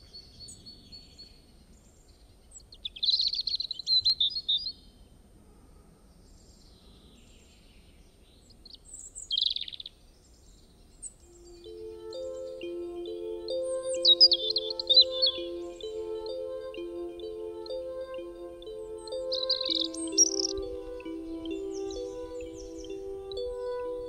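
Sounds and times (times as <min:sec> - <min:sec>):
faint background hiss: 0:00.0 - 0:24.0
birds chirping: 0:11.2 - 0:24.0.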